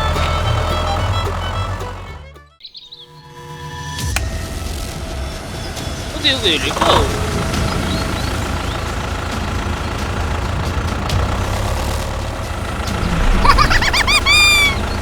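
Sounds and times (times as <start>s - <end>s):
vehicle engine rumbling: 0.0s - 2.4s, 4.1s - 15.0s
high squeals: 12.6s - 15.0s.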